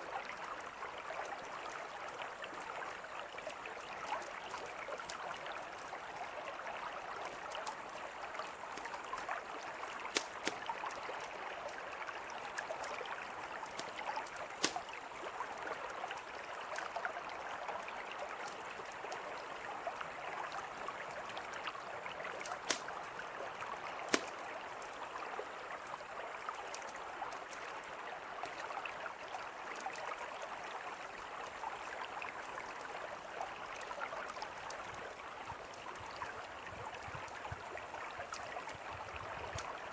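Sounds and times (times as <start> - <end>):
river flowing: 0.0 - 39.9
campfire crackling: 7.3 - 15.4, 22.3 - 25.0
fire pops: 10.0 - 10.7, 13.8 - 15.0, 22.4 - 23.0, 24.1 - 24.4.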